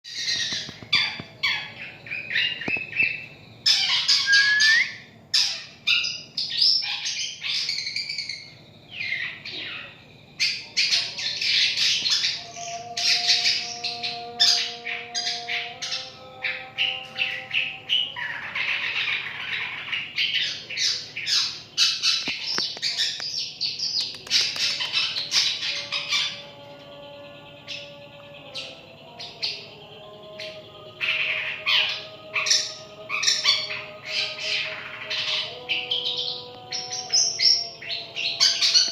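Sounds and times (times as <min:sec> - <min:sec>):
shrike chattering and squawking: 0:24.0 - 0:26.3.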